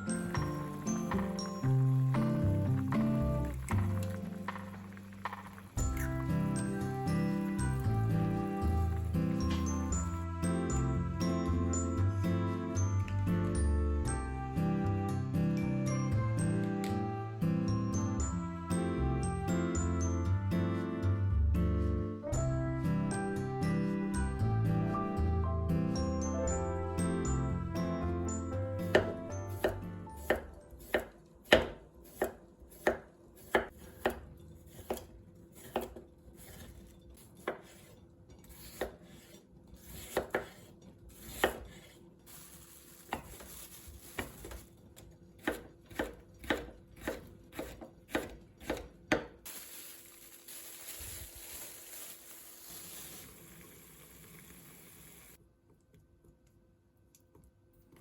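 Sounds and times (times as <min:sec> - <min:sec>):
knife chopping on cutting board: 0:28.9 - 0:36.8, 0:38.5 - 0:42.0, 0:45.4 - 0:49.4.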